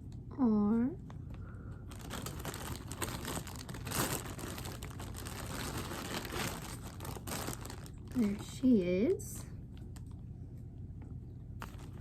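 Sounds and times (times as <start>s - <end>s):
plastic packaging crinkling: 1.0s - 8.7s, 11.6s - 12.0s.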